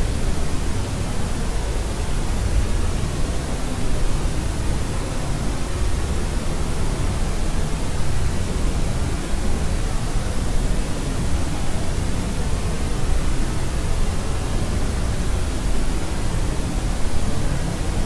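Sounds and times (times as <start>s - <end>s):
white noise hiss: 0.0s - 18.0s.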